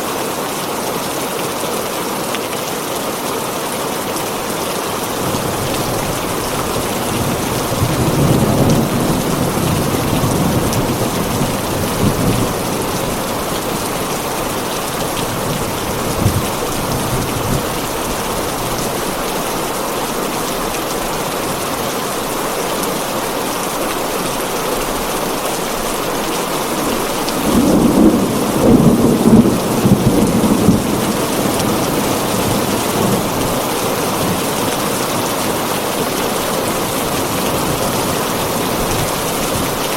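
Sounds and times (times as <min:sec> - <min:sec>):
heavy rain on a tin roof: 0:00.0 - 0:39.9
thunder rolling: 0:05.3 - 0:18.8, 0:26.6 - 0:34.6.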